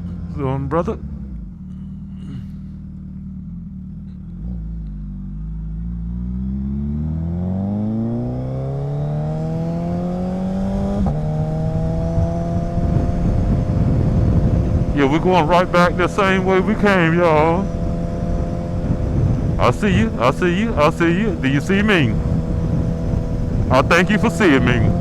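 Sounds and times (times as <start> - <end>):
motorcycle engine accelerating: 0.0 - 25.0
wind rumble on microphone: 10.6 - 15.3, 17.5 - 19.6, 22.2 - 23.7.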